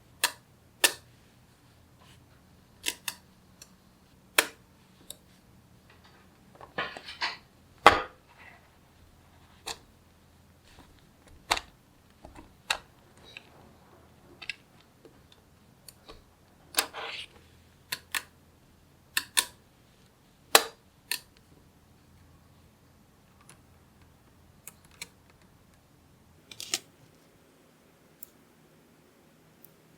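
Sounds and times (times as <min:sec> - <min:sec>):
magnetic balls snapping together: 0:00.1 - 0:01.1, 0:02.8 - 0:03.8, 0:04.4 - 0:05.2, 0:19.1 - 0:19.6.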